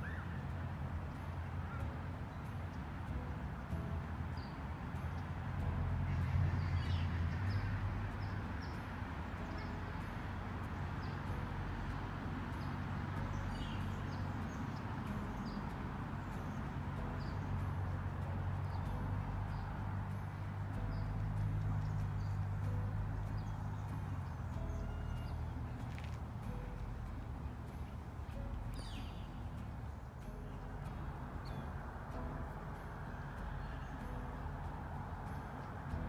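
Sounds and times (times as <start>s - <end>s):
low outdoor rumble: 0.0s - 36.0s.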